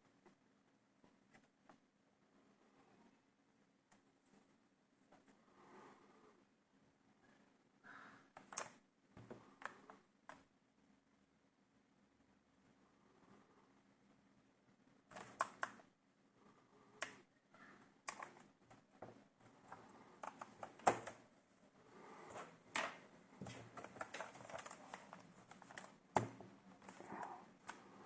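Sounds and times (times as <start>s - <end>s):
laptop being handled clicks and taps: 15.1s - 15.9s, 20.2s - 21.2s, 22.8s - 27.9s.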